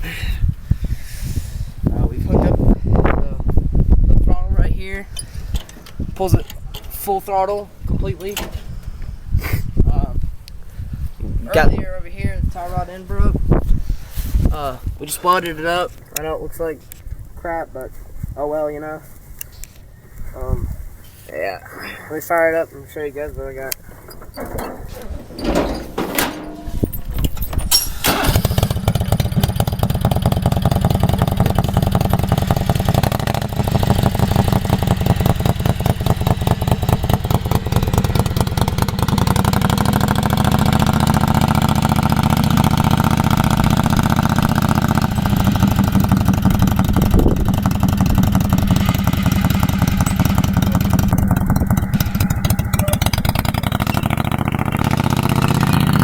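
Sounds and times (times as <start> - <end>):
engine starter cranking: 5.1 - 7.2, 8.2 - 9.0, 23.8 - 34.8, 43.6 - 54.9
mower engine running: 24.0 - 56.0.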